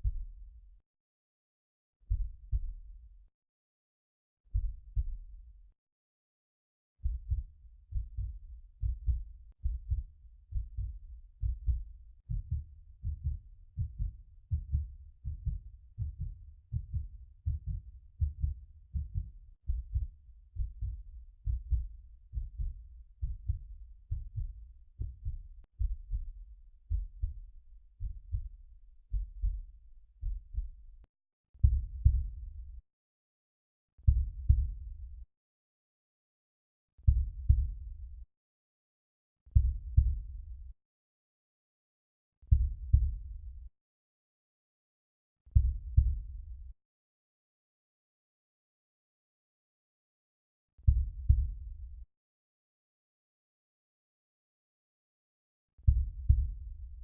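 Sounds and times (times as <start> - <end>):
heartbeat thumps: 7.0 - 26.3, 26.9 - 27.4, 31.6 - 32.4, 34.1 - 34.8, 37.1 - 37.8, 39.6 - 40.2, 42.5 - 43.2, 45.6 - 46.2, 50.9 - 51.6, 55.9 - 56.7.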